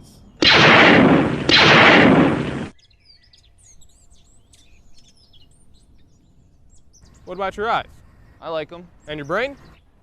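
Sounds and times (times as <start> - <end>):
harsh noise blasts: 0.4 - 2.7.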